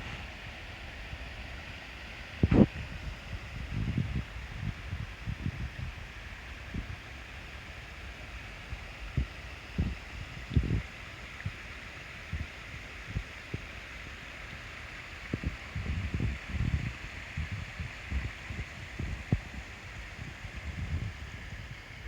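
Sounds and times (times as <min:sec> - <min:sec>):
wind buffeting microphone: 0:02.4 - 0:07.0, 0:09.1 - 0:10.9, 0:15.2 - 0:22.0.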